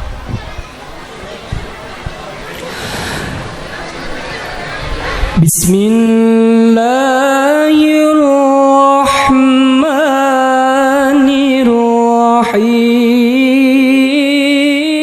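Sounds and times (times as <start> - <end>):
short breaths: 2.5 - 5.4
man chanting melodically: 5.4 - 15.0.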